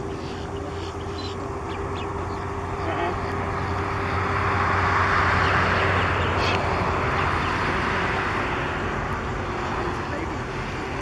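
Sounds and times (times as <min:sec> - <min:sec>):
faint bird chirps: 0:00.0 - 0:03.2
road traffic noise: 0:00.0 - 0:11.0.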